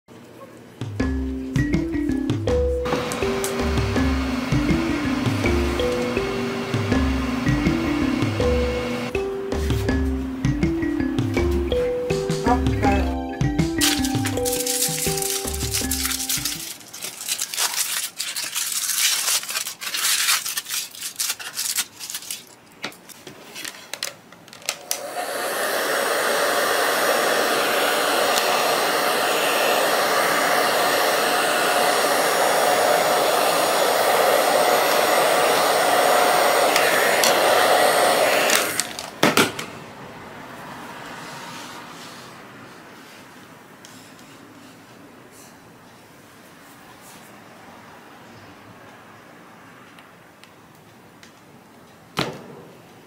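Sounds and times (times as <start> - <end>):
hair dryer blowing: 2.8 - 9.2, 13.8 - 16.7, 24.8 - 39.2
foil wrapper crinkling: 13.8 - 24.2.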